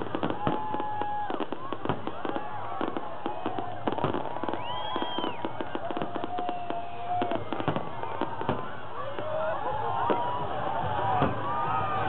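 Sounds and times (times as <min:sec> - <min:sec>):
fireworks whistling: 0:00.0 - 0:09.3
fireworks bangs and crackles: 0:00.0 - 0:12.0.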